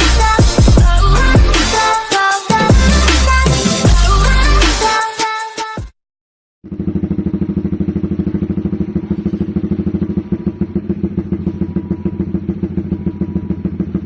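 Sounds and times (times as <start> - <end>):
motorcycle engine idling: 6.6 - 14.0.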